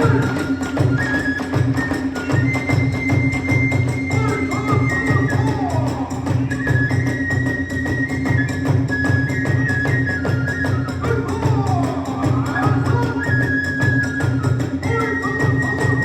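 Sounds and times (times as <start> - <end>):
hand cymbals clashing: 0.0 - 6.6
bamboo flute high notes: 0.0 - 16.0
taiko drums beating: 0.0 - 16.0.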